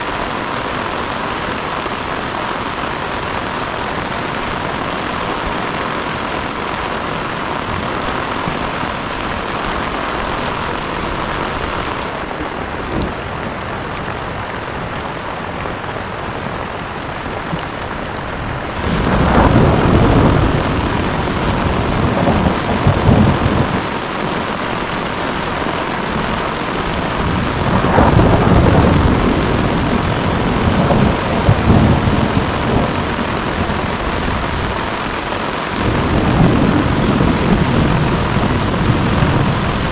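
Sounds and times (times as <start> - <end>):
heavy rain falling: 0.0 - 39.9
deep rumbles: 27.2 - 34.7.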